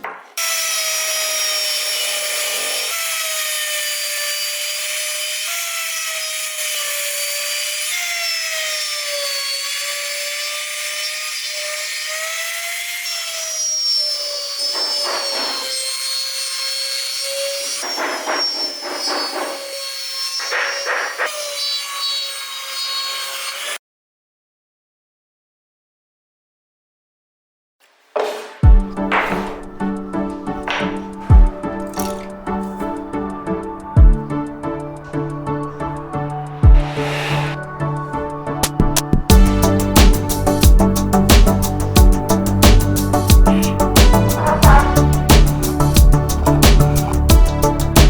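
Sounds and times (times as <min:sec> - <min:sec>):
power tool whining on wood: 0:00.4 - 0:23.8, 0:28.9 - 0:48.0
rough grinding into wood: 0:12.0 - 0:21.4, 0:27.8 - 0:33.4, 0:39.6 - 0:48.0.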